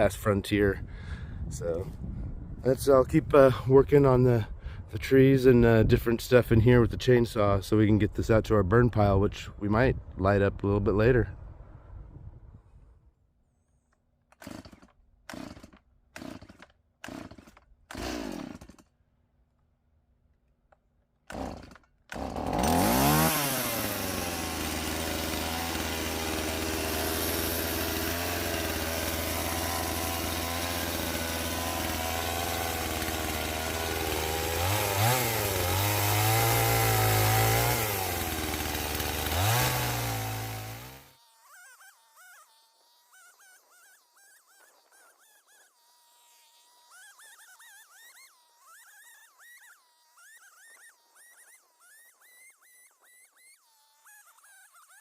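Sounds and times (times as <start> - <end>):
chainsaw engine revving: 14.3 - 18.9, 21.3 - 55.0.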